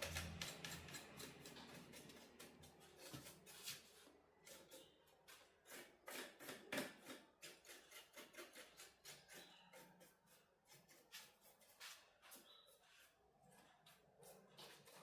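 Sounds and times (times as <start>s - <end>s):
small objects clicking and scratching: 0.0s - 3.1s.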